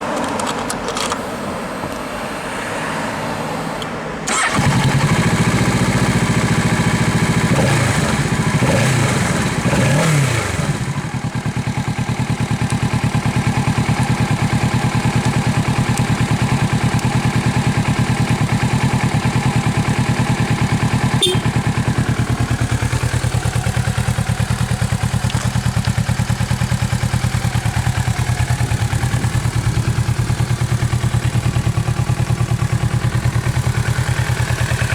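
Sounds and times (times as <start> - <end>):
starter motor cranking: 4.3 - 5.8
motorcycle engine revving and idling: 4.3 - 34.9.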